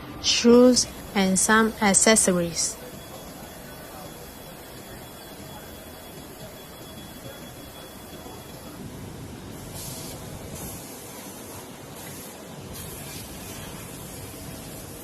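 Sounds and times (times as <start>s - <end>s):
factory machine noise: 0.0s - 15.0s
air hissing: 9.5s - 15.0s.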